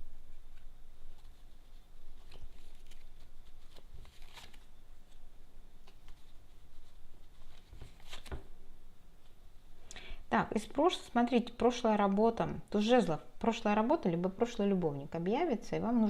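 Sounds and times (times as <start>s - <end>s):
cards shuffled and laid out: 2.2s - 5.2s, 7.4s - 8.5s.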